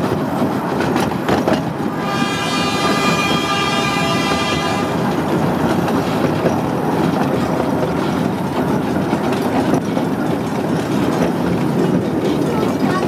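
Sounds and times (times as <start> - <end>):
train wheels clickety-clack: 0.0 - 13.0
train horn: 1.8 - 5.7.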